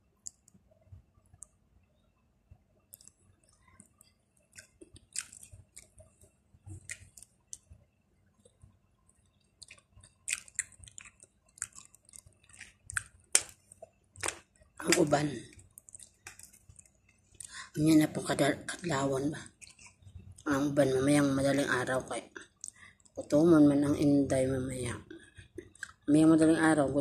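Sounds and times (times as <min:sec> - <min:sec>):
person chewing: 0:03.0 - 0:07.8, 0:09.3 - 0:17.6, 0:19.5 - 0:20.4.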